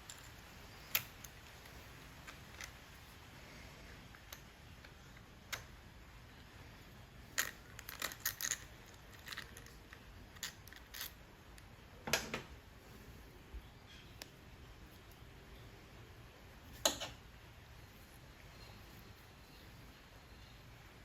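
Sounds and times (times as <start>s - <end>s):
small tools clicking and clinking: 0.0s - 2.9s, 7.3s - 11.2s.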